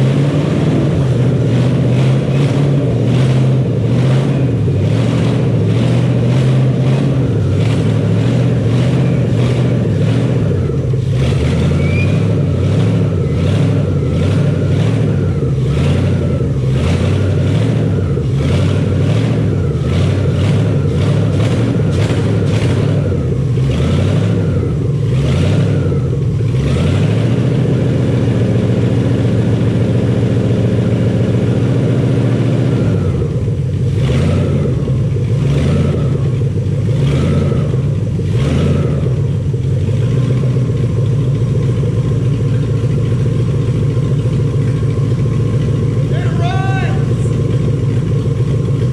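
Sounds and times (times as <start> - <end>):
engine revving: 0.0 - 48.9.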